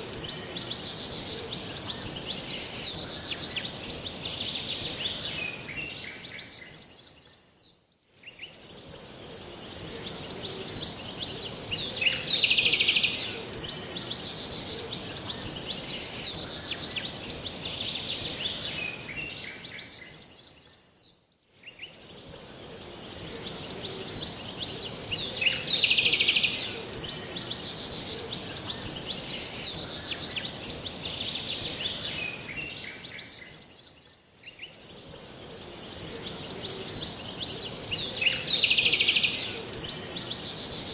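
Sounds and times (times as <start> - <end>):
steady high hiss: 34.5 - 40.9.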